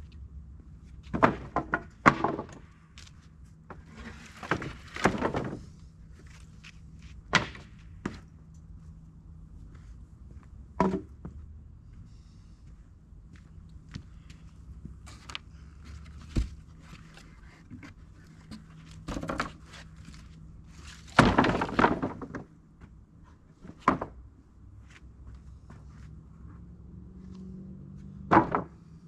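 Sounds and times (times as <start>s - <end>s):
faint low hum: 0.0s - 29.0s
objects knocking and thudding: 1.0s - 2.7s, 3.7s - 5.8s, 10.8s - 11.4s, 15.9s - 22.5s, 23.6s - 24.2s, 28.2s - 28.8s
rustling scrape: 3.8s - 5.0s.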